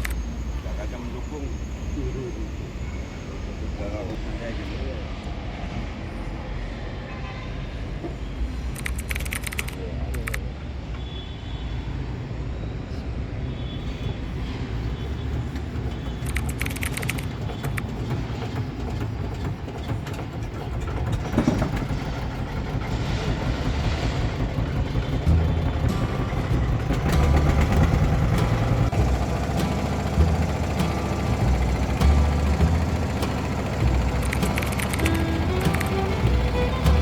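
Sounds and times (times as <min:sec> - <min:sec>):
low vehicle rumble: 0:14.4 - 0:37.0
clicks: 0:16.1 - 0:21.8, 0:25.4 - 0:37.0.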